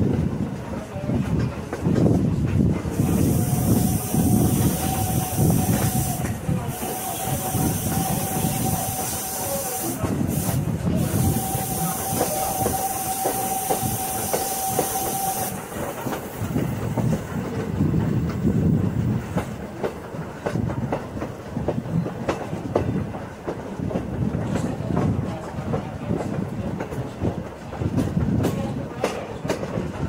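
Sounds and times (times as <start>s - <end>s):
train rumble: 0.0s - 30.0s
steam hiss with thin tone: 3.0s - 17.0s.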